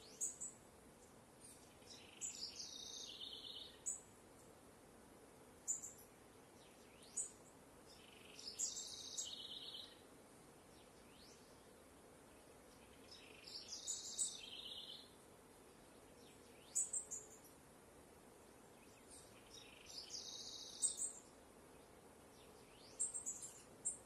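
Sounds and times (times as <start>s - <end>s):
high-pitched birdsong: 0.0s - 0.6s, 1.4s - 4.1s, 5.6s - 10.0s, 12.3s - 15.2s, 15.9s - 17.6s, 18.6s - 24.0s
faint outdoor background: 0.0s - 24.0s.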